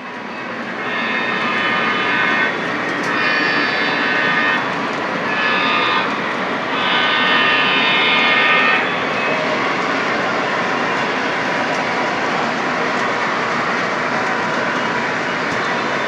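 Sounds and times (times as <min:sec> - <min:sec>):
train wheels rumbling on track: 0:00.0 - 0:16.0
electronic locomotive horn blasts: 0:00.2 - 0:11.9.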